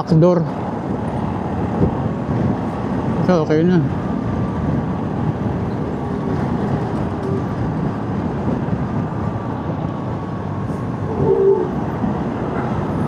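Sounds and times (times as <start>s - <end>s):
wind noise: 0.0s - 13.0s
short tone: 11.1s - 11.8s.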